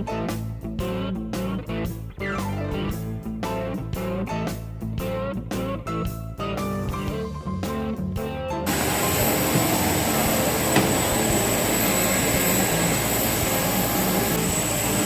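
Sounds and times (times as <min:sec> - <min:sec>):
jet engines roaring: 0:08.7 - 0:15.0
thin high whine: 0:08.7 - 0:15.0
single knock: 0:10.7 - 0:11.4.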